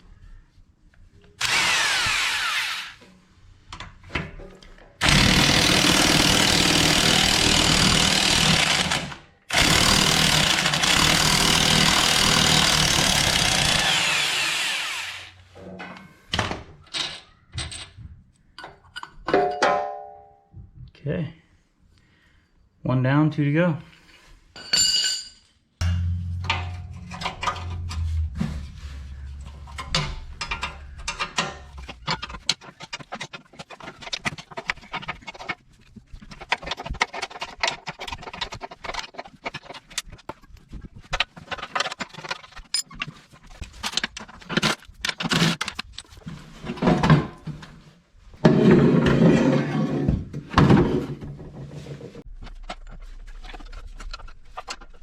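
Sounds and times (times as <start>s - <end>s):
wrenches and metal parts clinking: 24.5s - 28.4s, 29.3s - 47.2s
metal rattling: 25.8s - 35.8s.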